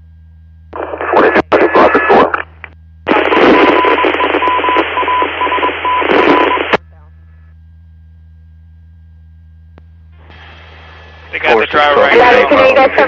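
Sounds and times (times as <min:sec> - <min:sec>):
low steady hum: 0:00.0 - 0:13.0
radio static burst: 0:00.7 - 0:06.8, 0:10.3 - 0:13.0
garbled radio voice: 0:00.8 - 0:02.5
broken beeping tone: 0:03.1 - 0:07.5.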